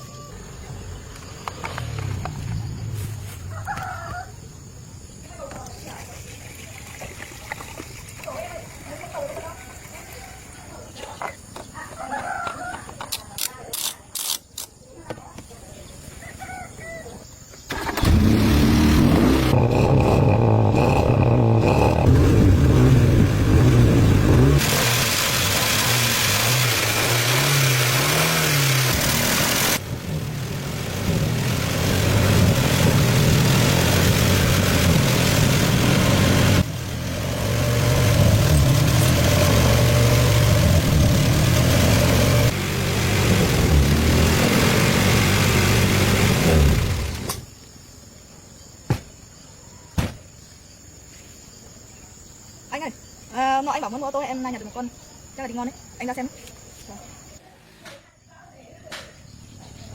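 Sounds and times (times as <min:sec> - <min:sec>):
car engine starting and revving: 0:01.3 - 0:03.4, 0:17.7 - 0:47.5.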